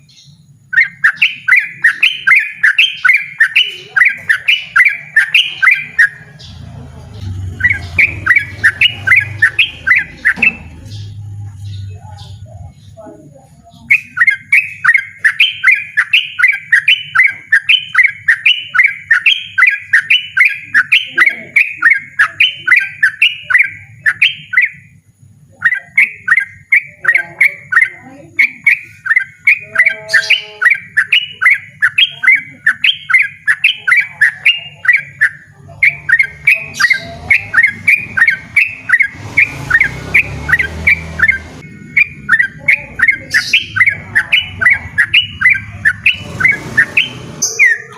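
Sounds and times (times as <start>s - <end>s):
bird singing sharp notes: 0.0s - 13.0s, 25.5s - 47.9s.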